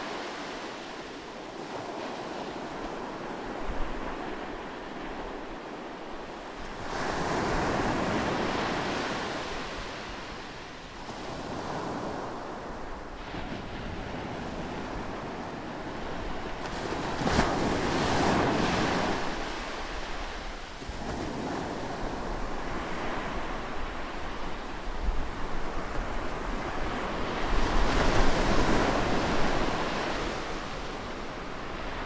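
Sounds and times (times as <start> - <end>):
wind buffeting microphone: 1.6 - 32.0
waves crashing on rocky shore: 16.4 - 32.0.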